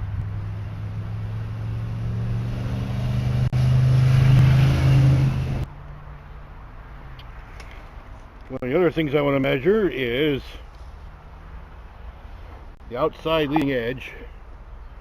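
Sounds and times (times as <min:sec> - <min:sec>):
vehicle engine accelerating: 0:00.0 - 0:05.7.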